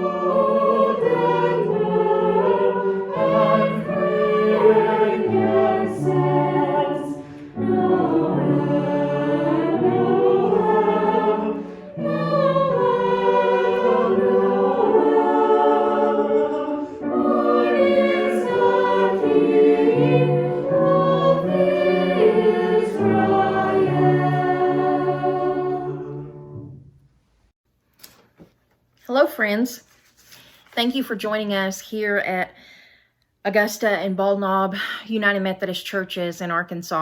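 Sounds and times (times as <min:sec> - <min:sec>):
choir singing a hymn: 0:00.0 - 0:26.8.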